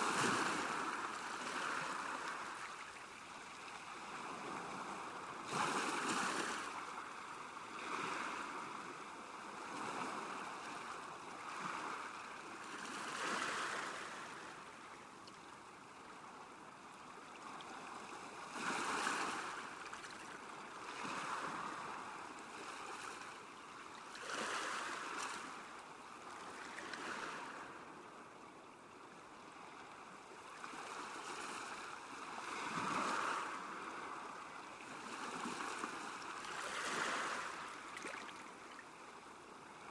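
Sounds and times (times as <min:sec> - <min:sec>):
small waves lapping at shore: 0:00.0 - 0:39.9.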